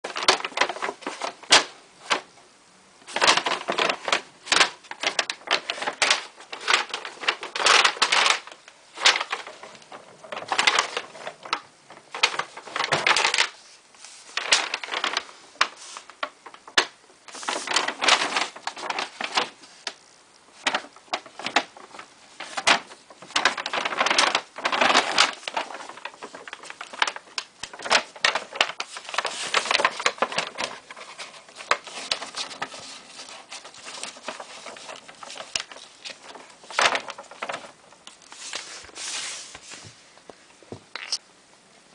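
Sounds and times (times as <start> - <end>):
plastic bag crinkling: 0.0 - 2.3, 3.0 - 39.9.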